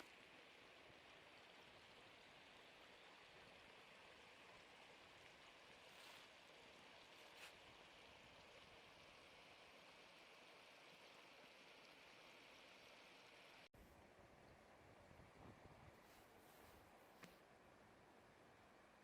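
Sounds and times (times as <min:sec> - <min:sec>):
faint steady hiss: 0:00.0 - 0:19.0
soft rustles: 0:05.9 - 0:06.3, 0:16.0 - 0:17.4.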